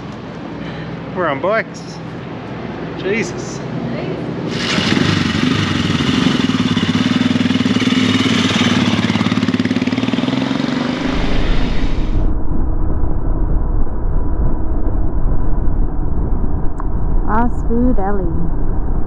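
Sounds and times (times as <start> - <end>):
motorcycle engine running: 4.5 - 11.9
low rumble: 10.9 - 19.0.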